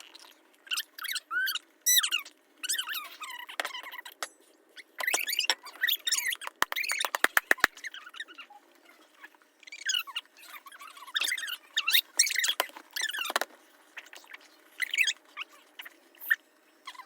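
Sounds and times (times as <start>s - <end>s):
sharp pops: 6.5s - 7.8s.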